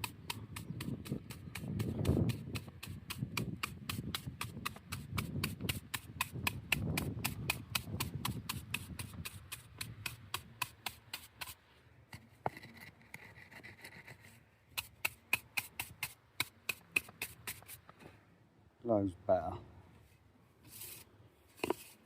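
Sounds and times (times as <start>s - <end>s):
stick tapping on mortar: 0.0s - 11.6s.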